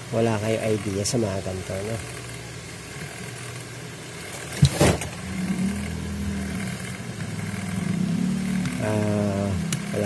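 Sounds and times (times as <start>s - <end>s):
low engine hum: 4.3s - 10.0s.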